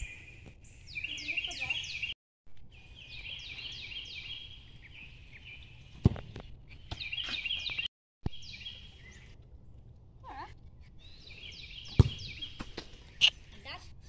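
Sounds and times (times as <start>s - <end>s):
birds chirping falling notes: 0.0s - 9.6s, 11.0s - 13.5s
sharp thump: 11.9s - 12.9s.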